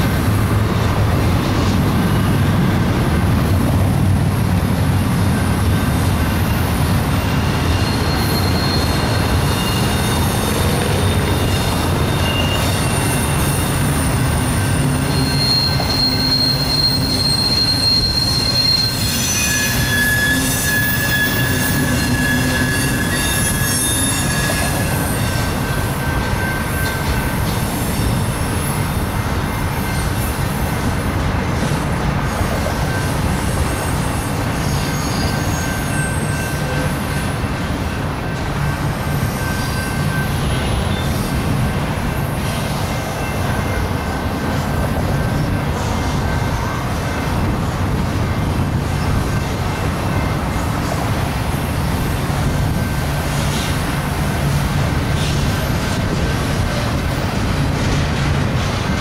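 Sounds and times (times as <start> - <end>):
train wheels rumbling on rails: 0.0 - 59.0
high-pitched wheel squeals: 5.3 - 28.8, 32.5 - 41.9.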